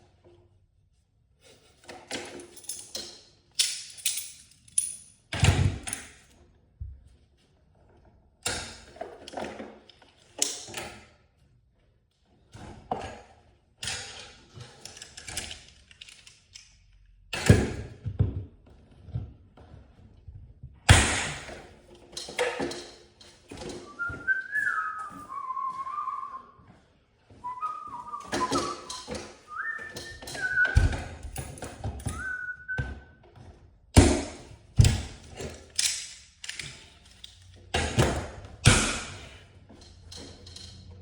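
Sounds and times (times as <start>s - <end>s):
person whistling a tune: 23.8s - 26.7s, 27.4s - 31.1s, 32.1s - 33.2s.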